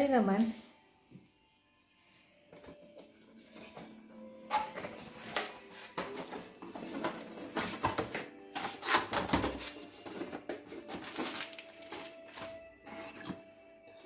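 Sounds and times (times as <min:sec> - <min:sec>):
packaging rustling and knocking: 0:02.6 - 0:13.4.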